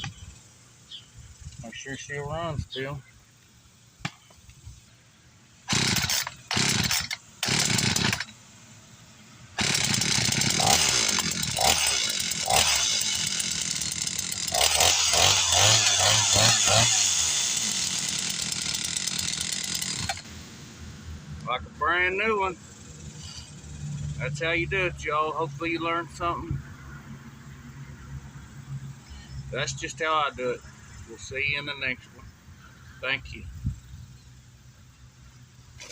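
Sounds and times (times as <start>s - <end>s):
chainsaw engine revving: 5.6s - 8.3s, 9.6s - 20.2s
chainsaw pull-start bursts: 5.6s - 8.4s, 9.6s - 20.3s.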